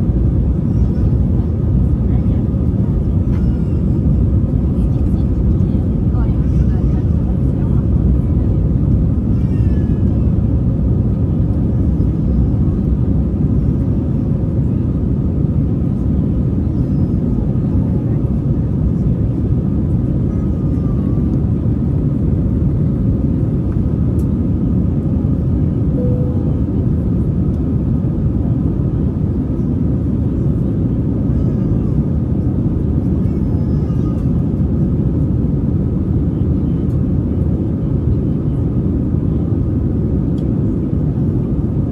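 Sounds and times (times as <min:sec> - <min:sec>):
airplane cabin engine rumble: 0:00.0 - 0:41.9
faint steady hum: 0:25.9 - 0:27.6.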